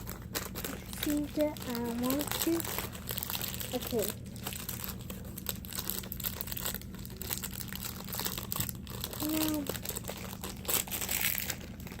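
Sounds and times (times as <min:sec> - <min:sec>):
crinkling and rustling: 0:00.0 - 0:12.0
short hummed voice: 0:09.1 - 0:09.8.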